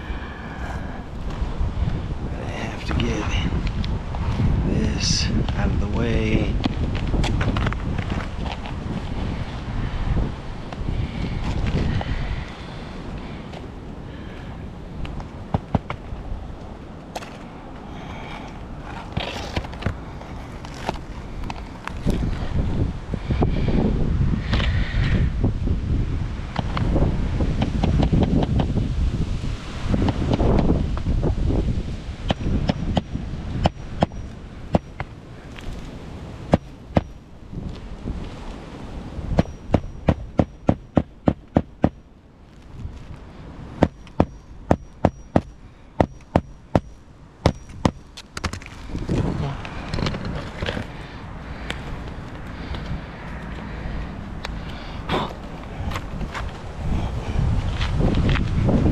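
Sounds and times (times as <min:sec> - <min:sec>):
wind buffeting microphone: 0:00.0 - 0:58.9
hand tools knocking on shingles: 0:43.8 - 0:48.1.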